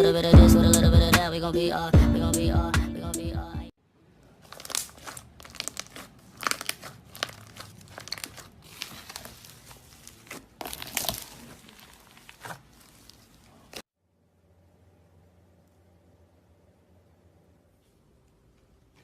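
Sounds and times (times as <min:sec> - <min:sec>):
slime crackling pops: 0:10.3 - 0:12.7.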